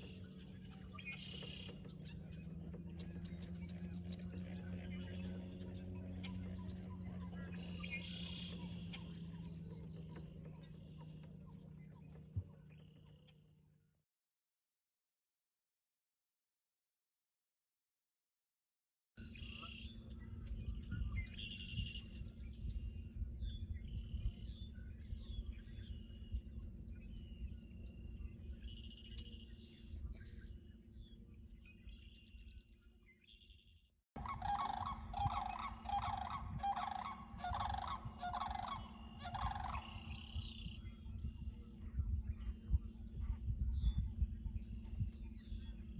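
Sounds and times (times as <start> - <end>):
lower-pitched repeated bird calls: 0.0 - 13.4, 19.2 - 45.9
birds chirping: 0.0 - 13.5, 19.2 - 45.9
steady low rumble: 19.4 - 32.7, 34.2 - 45.9.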